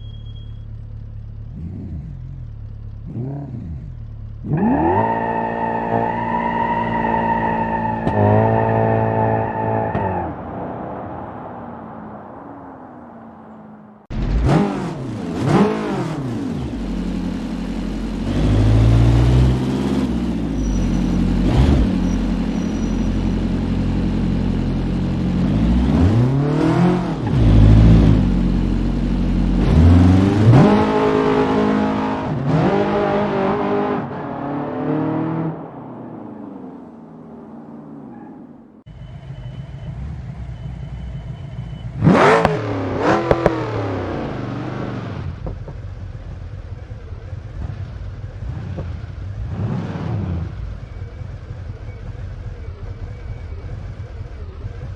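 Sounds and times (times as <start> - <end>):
car engine running: 0.0 - 5.4, 14.1 - 32.2
car engines revving: 0.0 - 54.9.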